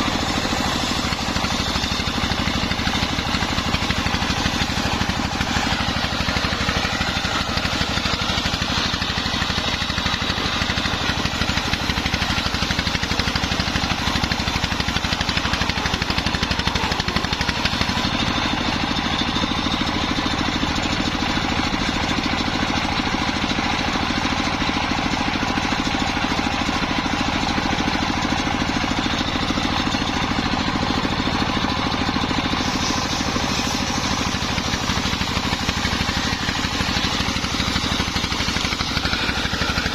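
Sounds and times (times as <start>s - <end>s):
sawmill engine pulsing: 0.0s - 39.9s.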